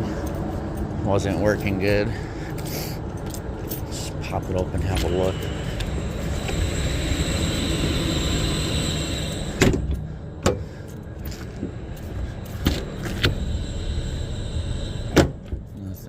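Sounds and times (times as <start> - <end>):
mechanical whirr: 3.8 - 16.0.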